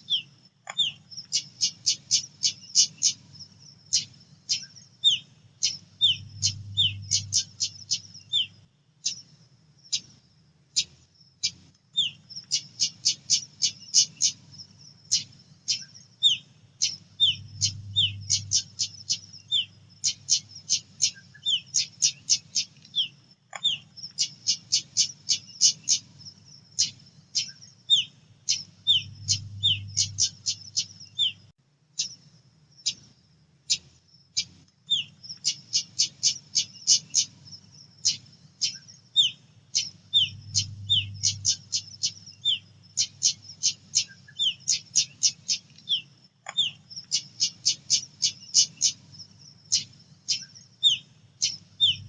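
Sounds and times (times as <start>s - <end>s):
bird calling with sharp chips: 0.0s - 3.2s, 15.1s - 26.0s, 34.4s - 37.4s, 38.0s - 49.0s, 49.7s - 52.0s.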